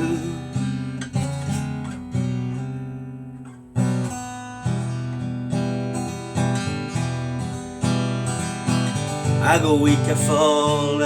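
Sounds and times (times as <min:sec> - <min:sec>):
person singing: 0:00.0 - 0:00.6, 0:09.4 - 0:11.0
acoustic guitar strumming chords: 0:00.0 - 0:11.0.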